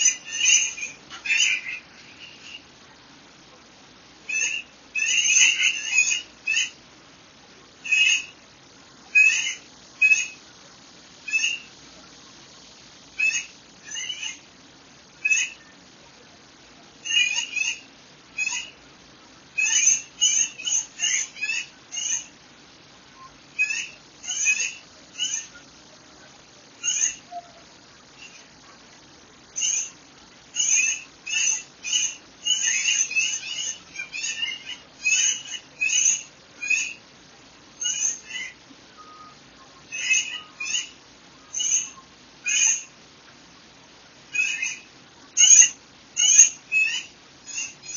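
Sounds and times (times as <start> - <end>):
short loud bird calls: 0.0 - 2.7, 4.2 - 6.8, 7.8 - 8.4, 9.1 - 10.6, 11.2 - 11.8, 13.1 - 14.5, 15.2 - 15.8, 17.0 - 18.8, 19.5 - 22.4, 23.1 - 25.8, 26.8 - 28.6, 29.6 - 37.1, 37.8 - 43.0, 44.3 - 47.9
faint steady hiss: 0.0 - 47.9.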